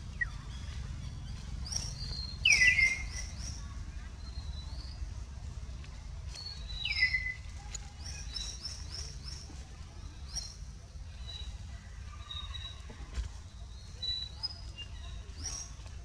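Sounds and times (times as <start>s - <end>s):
birds chirping: 0.0s - 16.0s
falling bird whistle: 2.4s - 3.6s.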